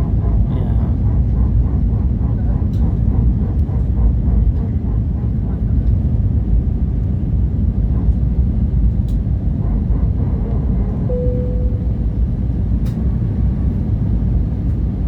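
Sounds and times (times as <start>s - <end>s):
airplane cabin rumble: 0.0s - 15.0s
faint brief tone: 11.1s - 12.1s.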